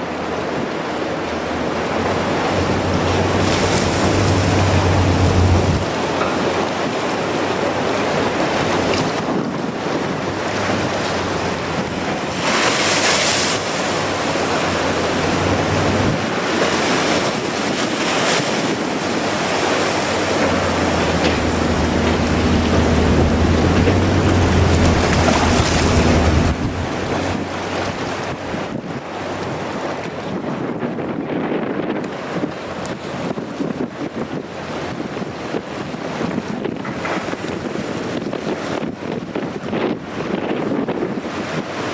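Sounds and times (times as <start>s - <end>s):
surf: 0.0s - 41.9s
wind buffeting microphone: 0.0s - 41.9s
steady low hum: 20.0s - 27.5s.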